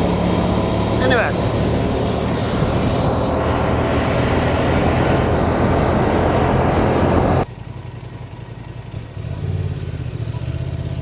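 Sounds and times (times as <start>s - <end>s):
wind rush: 0.0s - 7.5s
motorcycle engine: 0.0s - 11.0s.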